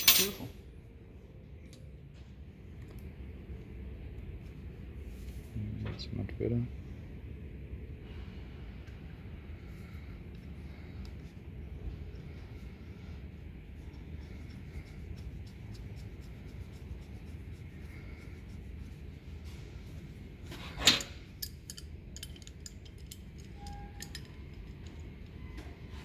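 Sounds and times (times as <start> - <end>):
metal parts clanking: 0.0 - 0.5, 20.6 - 25.0
steady low hum: 0.0 - 26.0.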